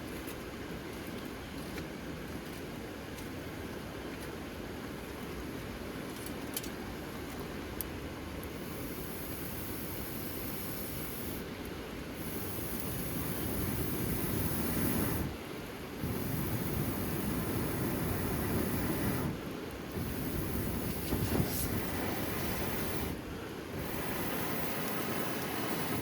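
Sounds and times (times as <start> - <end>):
rain: 0.1 - 26.0
high hiss: 8.5 - 11.5, 12.2 - 15.4, 16.0 - 26.0.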